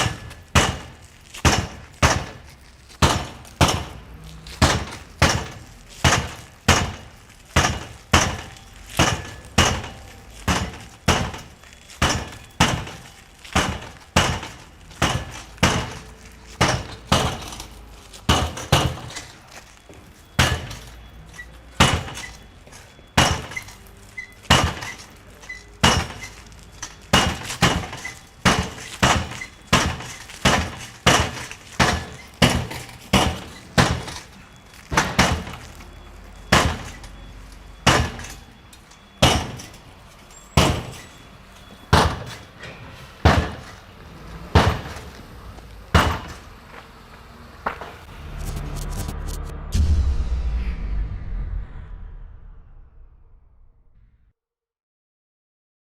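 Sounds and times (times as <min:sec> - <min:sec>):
sledgehammer striking glass: 0:00.0 - 0:45.2, 0:45.8 - 0:46.5.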